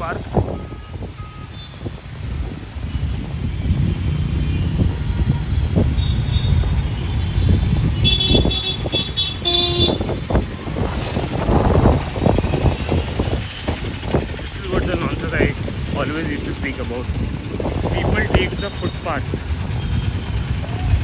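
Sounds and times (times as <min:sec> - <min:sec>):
vehicle horns honking: 0:00.0 - 0:02.0, 0:04.3 - 0:10.4
road traffic rumble: 0:00.0 - 0:21.0
low vehicle horn: 0:07.9 - 0:10.3.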